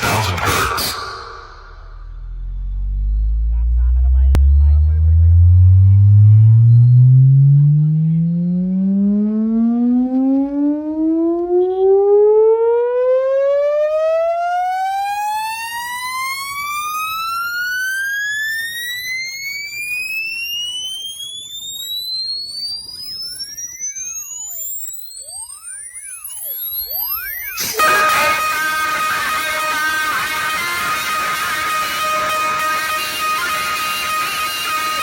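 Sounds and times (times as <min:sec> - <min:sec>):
rising test tone sweep: 0:00.5 - 0:11.0, 0:25.5 - 0:35.0.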